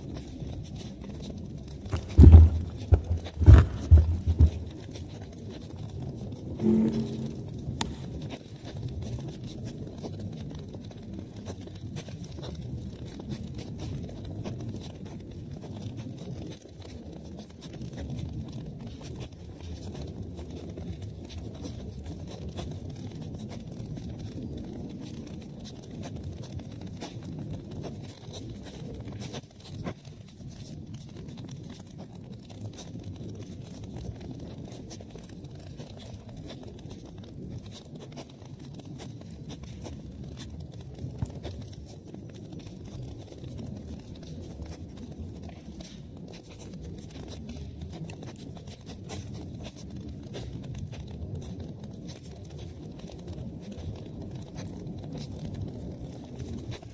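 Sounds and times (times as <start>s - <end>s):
wood fire crackling: 0.1s - 56.9s.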